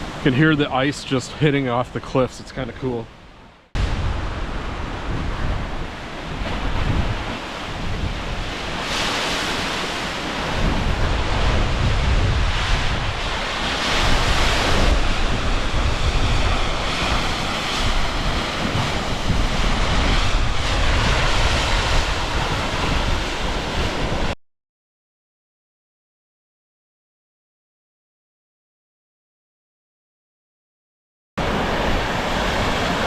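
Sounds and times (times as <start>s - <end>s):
waves surging against cliffs: 0.0s - 24.4s, 31.4s - 33.0s
wind rumbling on microphone: 3.8s - 24.4s.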